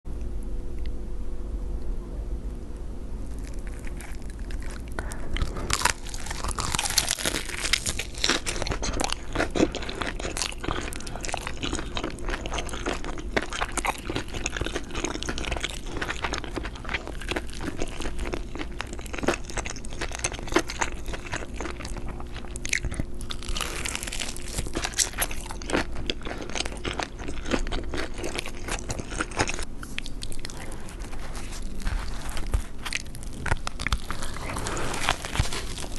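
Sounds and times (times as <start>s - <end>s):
crunchy bites of fried chicken: 3.3s - 35.9s
wet chewing: 3.3s - 35.9s.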